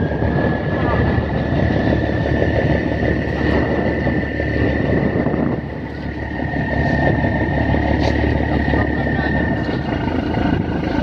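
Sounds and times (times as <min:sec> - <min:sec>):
boat engine with whine: 0:00.0 - 0:11.0.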